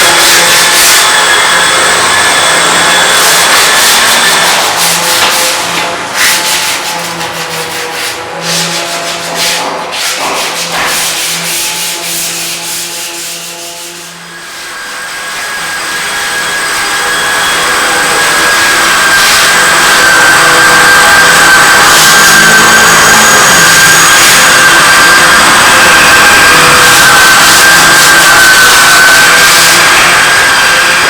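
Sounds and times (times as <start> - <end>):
machine whine: 0.0 - 9.9, 10.5 - 31.0
rough scraping strokes: 3.2 - 14.2.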